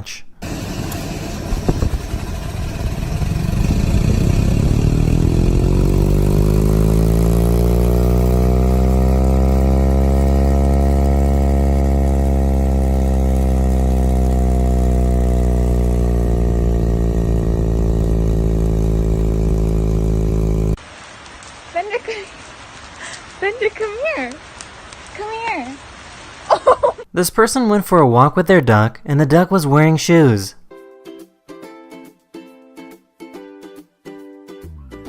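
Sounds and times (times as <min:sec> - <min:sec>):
car blower fan humming: 0:00.4 - 0:20.8.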